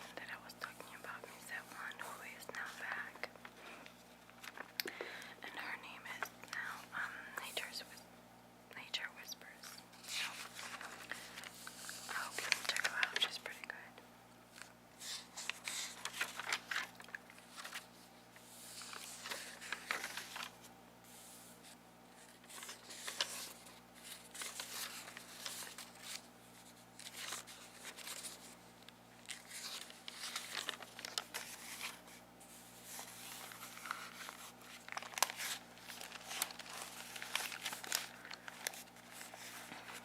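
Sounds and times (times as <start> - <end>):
plastic packaging crinkling and tearing: 9.6 - 13.8, 14.5 - 18.0, 18.6 - 20.6, 22.3 - 32.1, 32.8 - 40.0.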